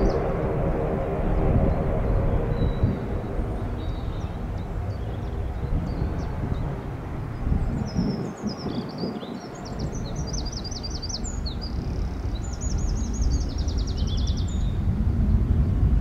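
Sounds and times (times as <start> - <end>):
steady low rumble: 0.0 - 16.0
songbird trilling: 7.6 - 14.8.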